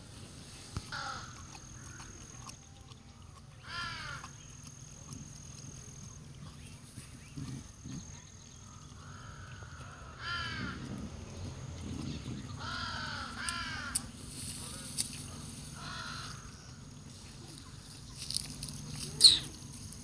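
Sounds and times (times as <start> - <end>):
bird harsh calls: 19.2 - 19.5.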